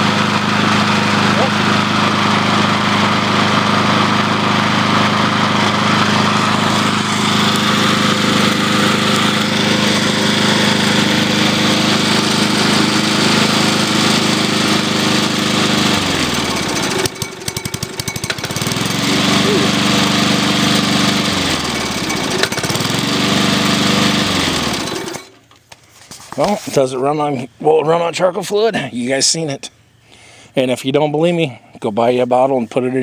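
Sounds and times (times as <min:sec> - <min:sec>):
lawn mower engine running: 0:00.0 - 0:25.8.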